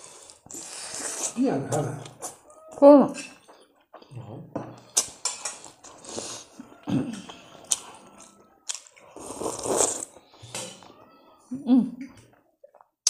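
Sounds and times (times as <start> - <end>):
person slurping from a bowl: 0.0 - 1.4, 5.6 - 6.6, 9.0 - 10.8.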